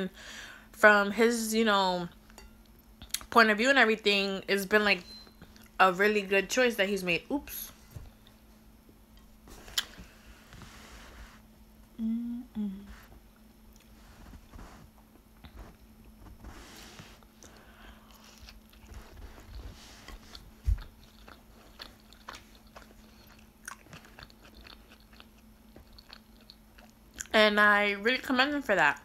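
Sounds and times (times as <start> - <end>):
tortilla rustling: 13.8 - 17.4, 18.2 - 23.2
chewing with wet mouth clicks: 20.3 - 27.3.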